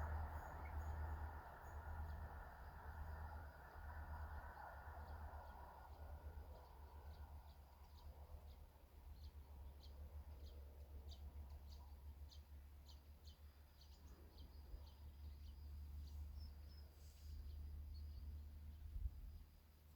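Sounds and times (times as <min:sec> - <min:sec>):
low steady rumble: 0:00.0 - 0:19.9
small bird chirping: 0:06.6 - 0:18.9.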